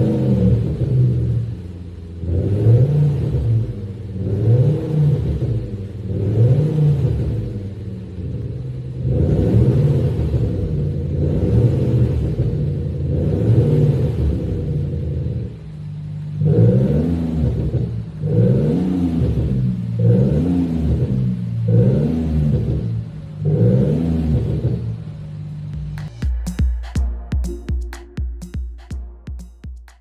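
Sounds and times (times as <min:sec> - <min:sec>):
synthesized exhaust note revving: 0:23.5 - 0:30.0.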